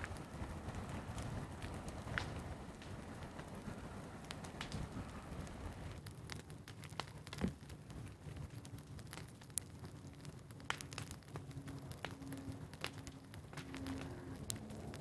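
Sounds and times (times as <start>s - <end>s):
burning brush crackling: 0.0s - 15.0s
low rumble: 11.2s - 15.0s.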